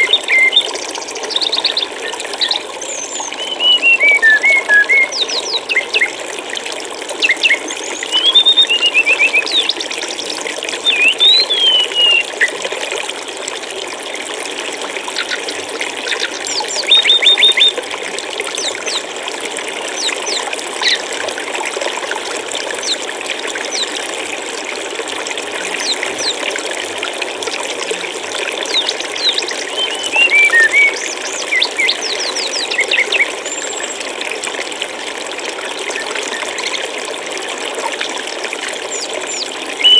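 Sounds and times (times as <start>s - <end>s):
songbird chirping and trilling: 0.0s - 6.1s, 7.2s - 10.0s, 10.9s - 12.5s, 16.1s - 17.7s, 28.7s - 33.8s, 38.9s - 39.9s
flowing water: 0.0s - 39.9s.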